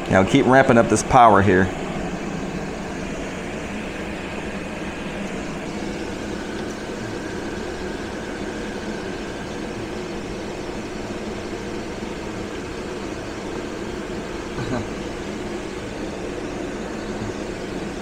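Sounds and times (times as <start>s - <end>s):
air conditioner running: 0.0s - 18.0s.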